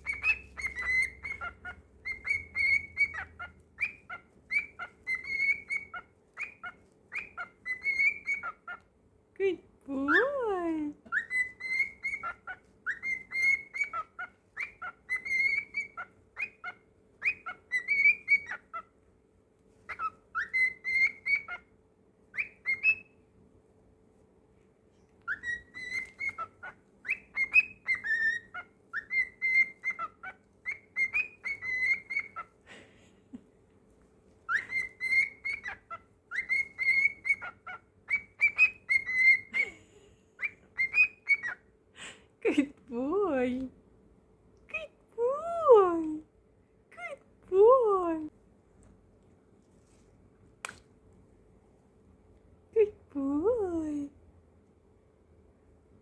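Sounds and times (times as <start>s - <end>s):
cockatiel whistling: 0.0s - 8.8s, 11.1s - 18.9s, 19.9s - 21.7s, 22.3s - 23.2s, 25.2s - 32.5s, 34.5s - 39.7s, 40.4s - 41.6s.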